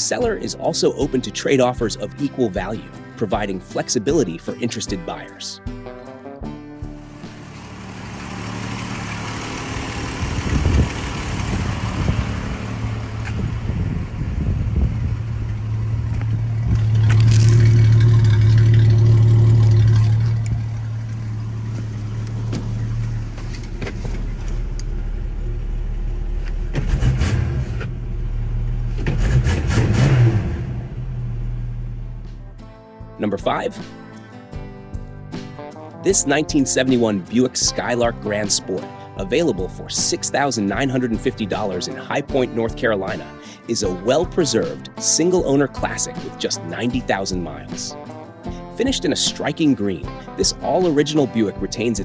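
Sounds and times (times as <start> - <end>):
car engine running: 6.8 - 32.7
engine knocks: 6.9 - 32.6.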